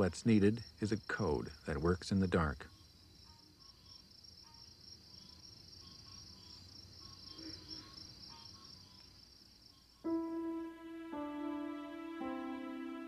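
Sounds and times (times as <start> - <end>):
crickets trilling: 0.0 - 12.8
soft music with long held notes: 10.0 - 13.0.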